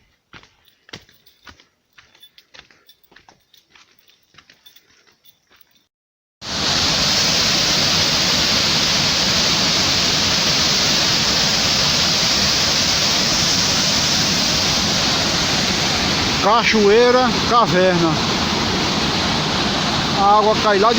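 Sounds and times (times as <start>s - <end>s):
waterfall rushing: 6.4s - 20.9s.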